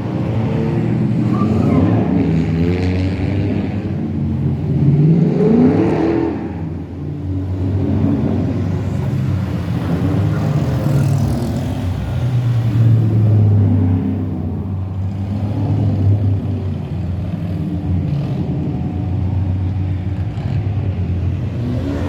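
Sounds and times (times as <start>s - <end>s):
rally car engine revving: 20.2s - 22.0s.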